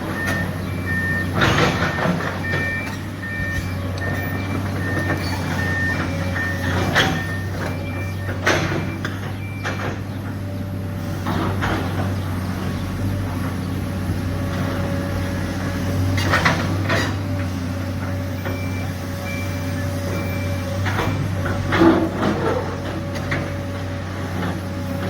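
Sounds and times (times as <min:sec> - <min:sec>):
excavator diesel engine running: 0:00.0 - 0:25.0
short high beeps: 0:01.9 - 0:08.2.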